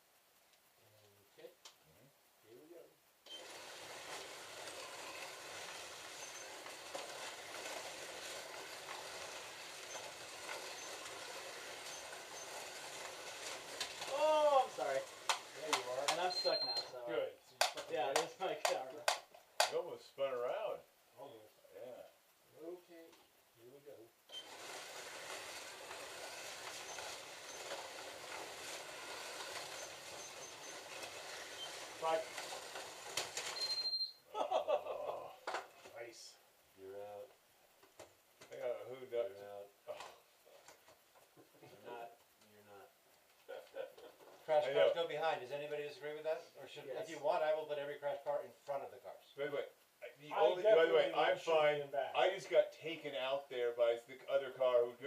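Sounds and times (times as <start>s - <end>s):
slot cars whirring: 3.3s - 16.6s, 24.3s - 33.7s.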